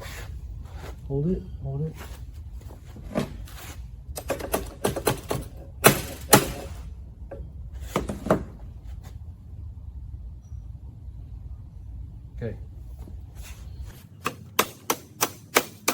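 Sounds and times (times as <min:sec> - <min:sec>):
loud knocks: 0:04.2 - 0:06.8
sharp clicks of metal parts: 0:04.2 - 0:06.8, 0:14.2 - 0:15.9.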